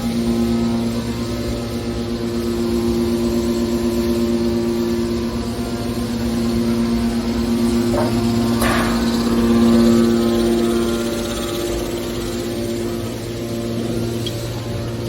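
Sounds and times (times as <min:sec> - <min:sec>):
baler power pack humming: 0:05.7 - 0:15.0.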